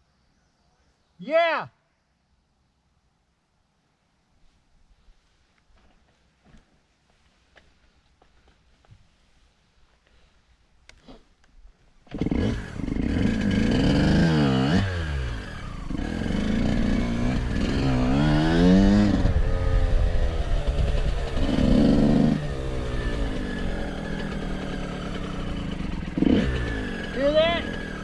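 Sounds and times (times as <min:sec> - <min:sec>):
motorcycle engine starting and revving: 0:12.0 - 0:28.0.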